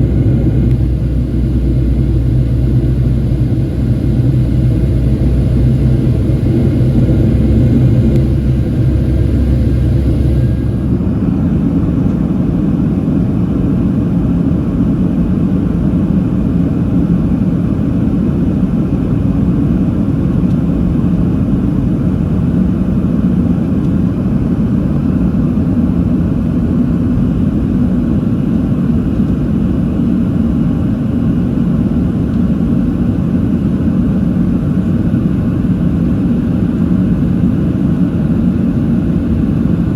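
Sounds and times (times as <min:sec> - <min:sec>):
jet engines rumbling: 0:00.0 - 0:13.7.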